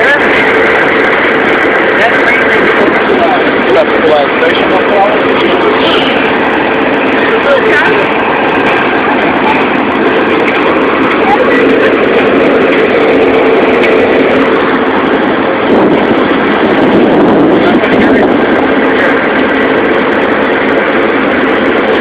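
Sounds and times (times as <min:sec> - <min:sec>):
diesel locomotive engine running: 0:00.0 - 0:22.0
freight train rumbling past: 0:00.0 - 0:22.0.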